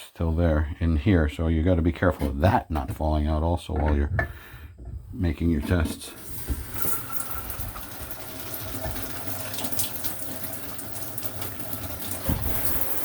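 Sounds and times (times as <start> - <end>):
shower water running: 6.2 - 13.0
short low thump: 12.2 - 12.7.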